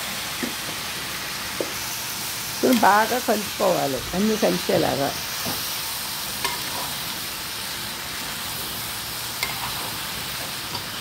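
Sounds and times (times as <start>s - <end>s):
food sizzling in a pan: 0.0s - 11.0s
spatula clinking against pan: 9.4s - 9.7s.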